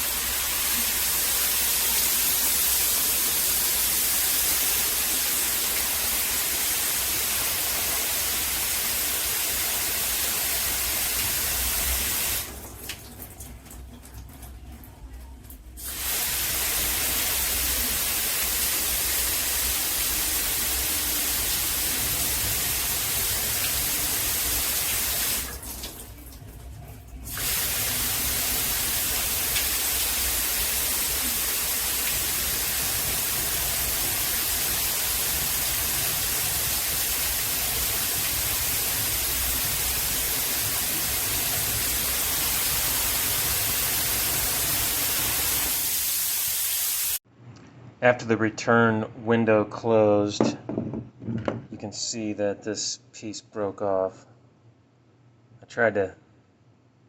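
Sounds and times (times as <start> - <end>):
water spraying from shower head: 0.0 - 12.6, 15.8 - 26.0, 27.3 - 47.2.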